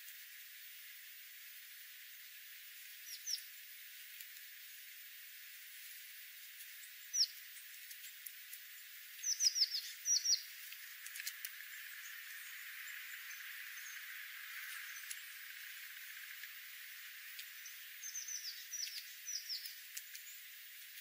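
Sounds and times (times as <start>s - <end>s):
small birds chirping: 1.5s - 21.0s
faint clicks: 10.5s - 21.0s.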